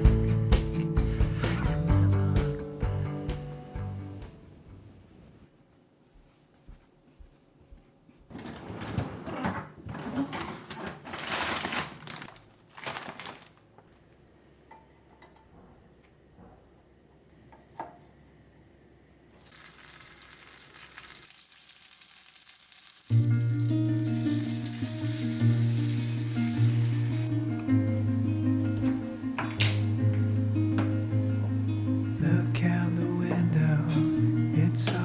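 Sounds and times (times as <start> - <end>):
food sizzling: 19.4 - 35.0.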